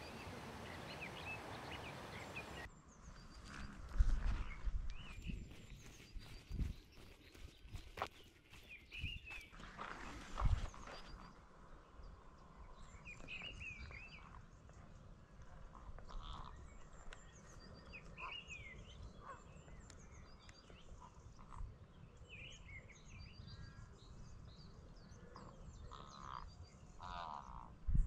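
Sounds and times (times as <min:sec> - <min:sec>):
birds chirping and calling: 0:00.0 - 0:02.7.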